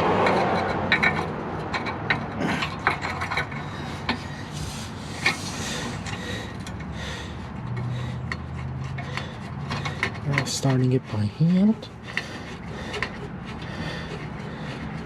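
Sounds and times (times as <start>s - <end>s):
metal hardware clicking and scraping: 0.0s - 6.9s, 7.6s - 11.0s, 11.8s - 15.0s
steady low hum: 3.5s - 8.7s.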